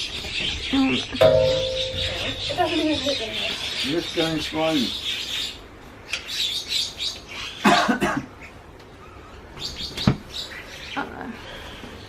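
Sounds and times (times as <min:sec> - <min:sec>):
people making cough-like bursts: 0:07.6 - 0:08.3.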